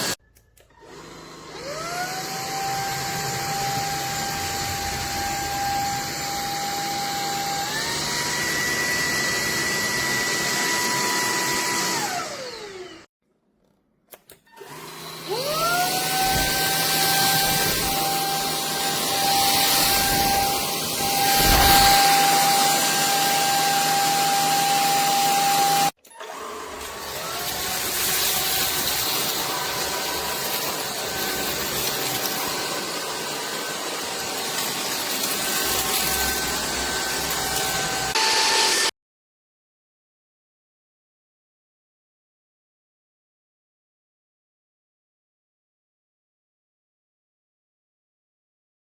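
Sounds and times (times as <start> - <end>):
stick vacuum cleaner running: 0.0 - 13.1, 14.6 - 38.9.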